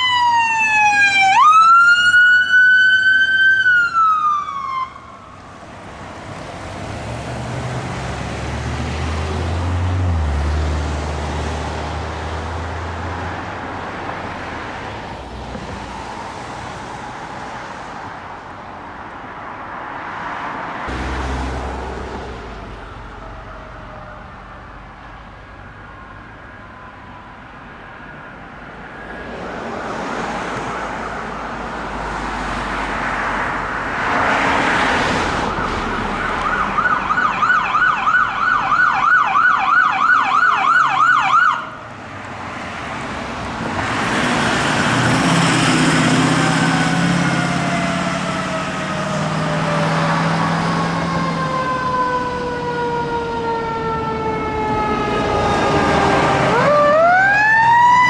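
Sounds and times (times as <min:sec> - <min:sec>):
siren rising: 0:00.0 - 0:05.7, 0:20.9 - 0:27.4, 0:34.8 - 0:41.8, 0:44.3 - 0:58.0
traffic noise: 0:00.0 - 0:58.0
siren yelping fast: 0:35.5 - 0:41.8, 0:51.0 - 0:58.0
siren winding down in pitch: 0:46.0 - 0:58.0.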